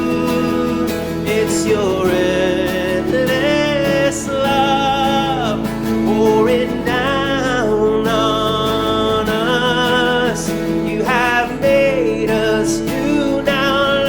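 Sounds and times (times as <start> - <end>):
guitar accompaniment: 0.0 - 14.0
sliding melodic lead line: 0.0 - 14.0.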